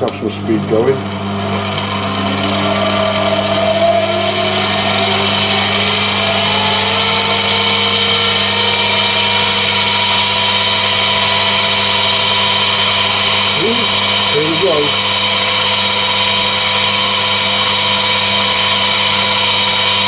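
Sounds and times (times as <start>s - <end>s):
lathe motor humming and whining: 0.0s - 20.0s.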